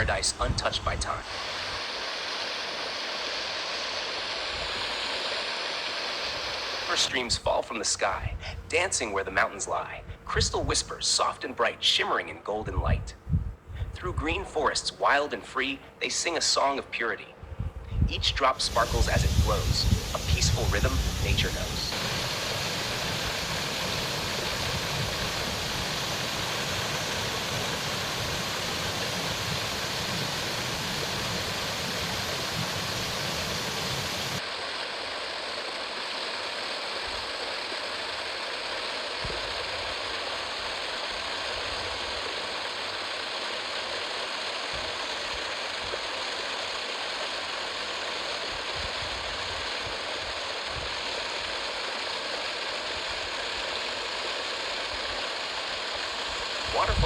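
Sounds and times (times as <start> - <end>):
waterfall rushing: 18.6 - 34.4.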